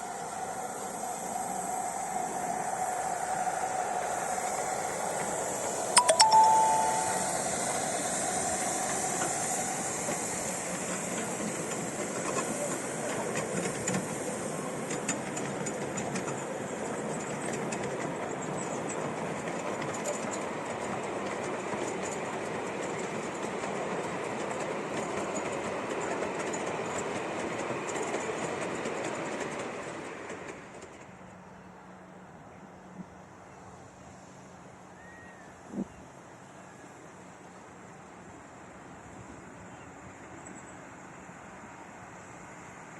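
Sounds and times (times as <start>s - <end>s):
train rumbling on rails: 0.0s - 42.9s
loud steady high tone: 6.0s - 7.8s
wheels clicking over rail joints: 14.8s - 31.2s.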